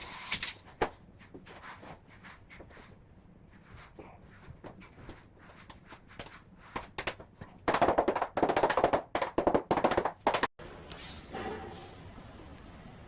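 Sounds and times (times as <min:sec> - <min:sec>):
fast sharp clattering knocks: 0:06.9 - 0:10.5.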